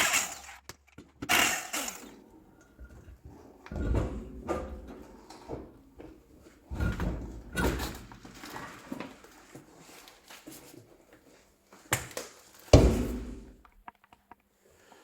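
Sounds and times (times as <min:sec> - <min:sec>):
heavy metal knocks and clanks: 0:02.8 - 0:08.4, 0:12.8 - 0:13.6.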